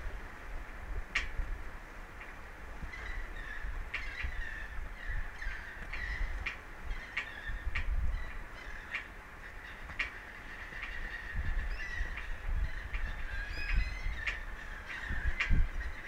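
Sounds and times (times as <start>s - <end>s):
wind rumble on microphone: 0.0s - 16.0s
seabirds calling: 2.1s - 16.0s.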